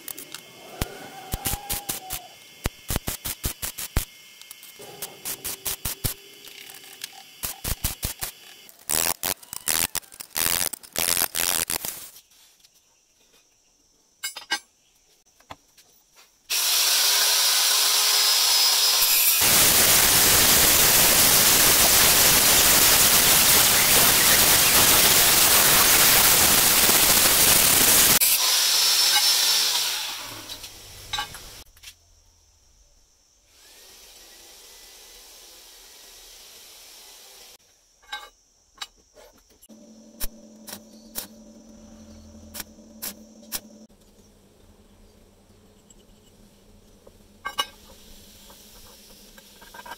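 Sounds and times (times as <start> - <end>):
welding arc crackling: 1.3 - 4.1, 5.2 - 6.3, 7.0 - 12.2, 19.0 - 28.4, 42.5 - 43.9
angle grinder grinding metal: 16.5 - 30.8.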